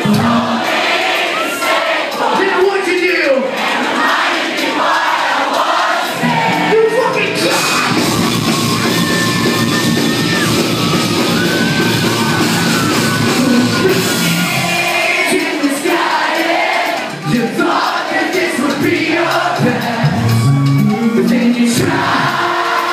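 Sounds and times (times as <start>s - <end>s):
man singing: 0.0s - 0.6s, 13.2s - 16.2s, 17.2s - 22.9s
crowd voices: 0.0s - 22.9s
live rock band playing: 0.0s - 22.9s.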